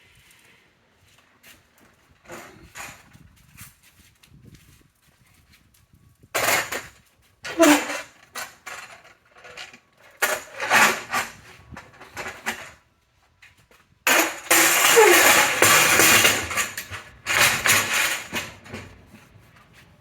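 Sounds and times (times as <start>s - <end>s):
metal clanking and scraping: 6.4s - 12.8s, 14.1s - 19.2s.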